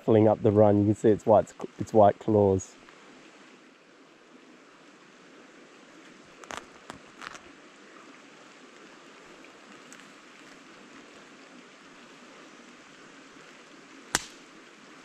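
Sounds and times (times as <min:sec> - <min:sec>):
stream running water: 0:00.0 - 0:15.0
clicks and rustles: 0:06.4 - 0:07.5.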